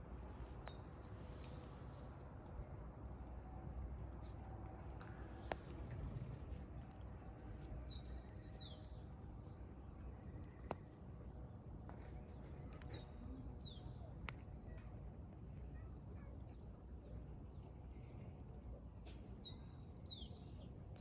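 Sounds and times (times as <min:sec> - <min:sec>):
wood fire crackling and popping: 0:00.0 - 0:15.6
small bird singing: 0:00.5 - 0:02.1, 0:07.8 - 0:11.5, 0:12.2 - 0:14.1, 0:19.3 - 0:21.0.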